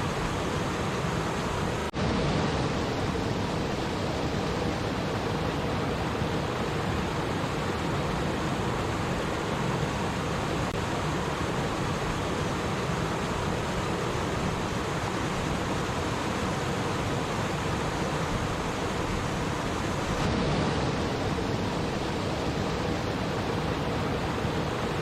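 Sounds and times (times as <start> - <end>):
water stream babbling: 0.0 - 25.0.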